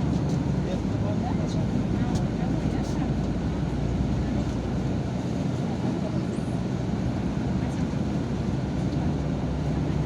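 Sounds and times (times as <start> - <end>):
bus engine and road rumble: 0.0 - 10.0.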